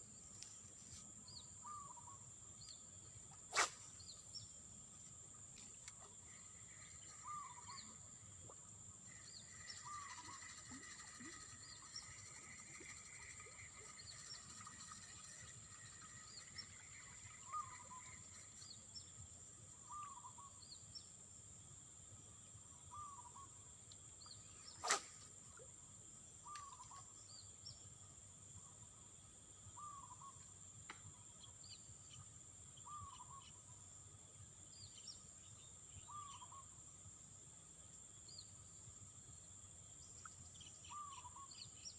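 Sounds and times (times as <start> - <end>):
small chirps: 5.5 - 19.1, 23.2 - 25.7
high-pitched insect drone: 6.3 - 19.1.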